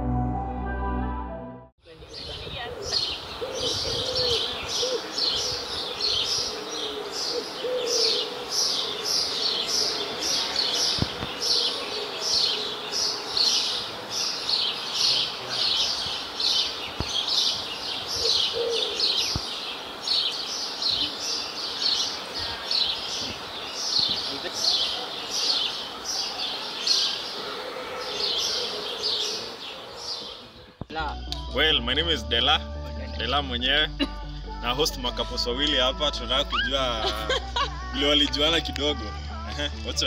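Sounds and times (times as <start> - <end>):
dove cooing: 2.5 - 14.0, 18.2 - 19.3, 27.3 - 30.6.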